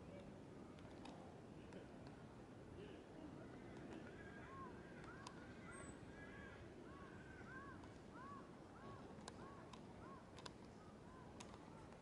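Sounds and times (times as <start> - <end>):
light clicks: 9.2 - 10.8.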